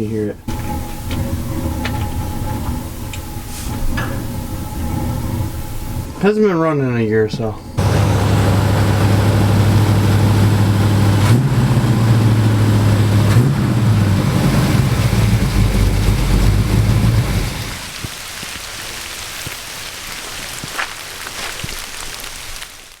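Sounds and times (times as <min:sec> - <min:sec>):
furnace low hum: 0:00.0 - 0:18.0
burner flame rushing: 0:07.8 - 0:20.6.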